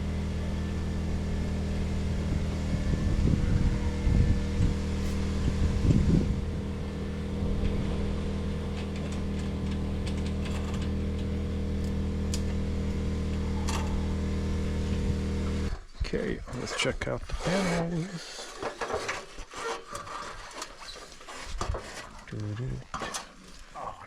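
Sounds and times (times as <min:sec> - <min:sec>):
engine humming: 0:00.0 - 0:15.8.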